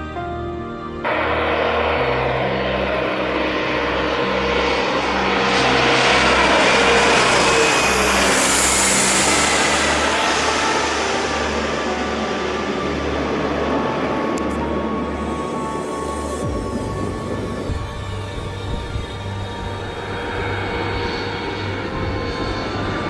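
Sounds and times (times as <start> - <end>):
jet airliner passing: 0.0 - 23.0
trance music: 0.0 - 23.0.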